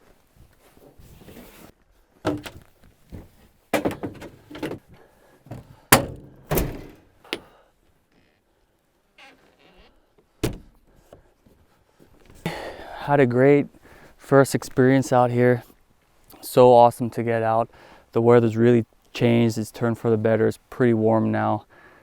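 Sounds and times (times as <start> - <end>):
gear thunks and knocks: 2.3 - 4.9, 5.5 - 7.5, 10.4 - 10.8.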